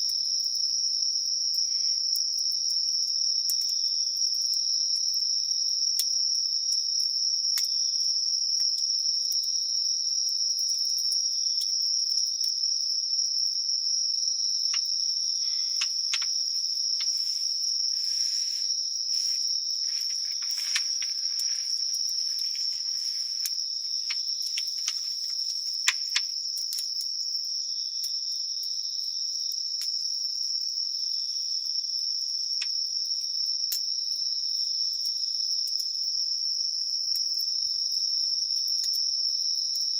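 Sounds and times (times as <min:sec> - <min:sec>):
crickets trilling: 0:00.0 - 0:39.9
campfire crackling and popping: 0:15.5 - 0:27.2.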